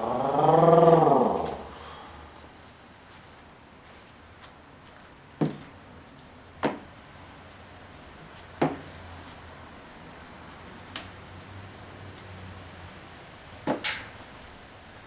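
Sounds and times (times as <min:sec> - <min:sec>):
knocks on wood: 0:06.6 - 0:06.9, 0:08.6 - 0:08.8.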